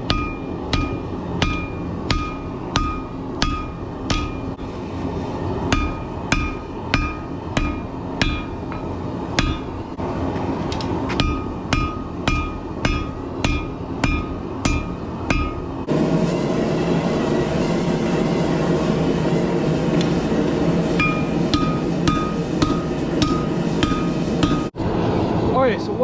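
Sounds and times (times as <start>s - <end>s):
hammer striking metal on anvil: 0.0s - 4.6s, 5.6s - 10.0s, 10.7s - 15.8s, 19.9s - 24.8s.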